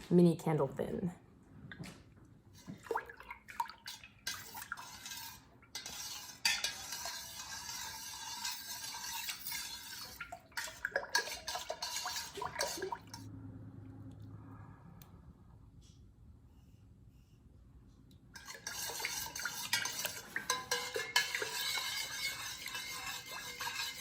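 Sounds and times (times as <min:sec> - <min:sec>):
utensil scraping container: 0:04.2 - 0:13.3, 0:18.4 - 0:24.0
utensil clinking against container: 0:04.3 - 0:13.3, 0:18.4 - 0:24.0.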